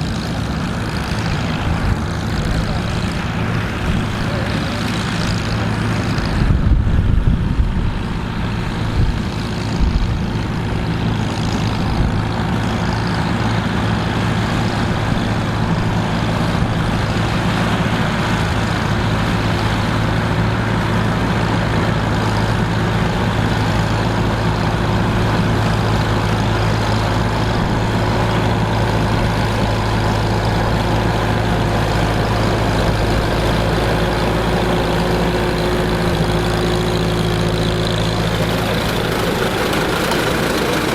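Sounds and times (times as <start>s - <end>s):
heavy engine running: 0.0s - 40.9s.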